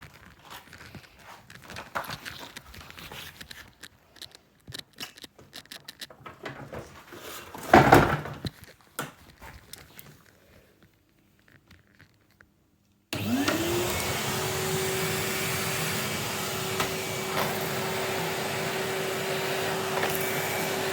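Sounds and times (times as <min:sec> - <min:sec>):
rustling and clicks: 0:00.0 - 0:14.1.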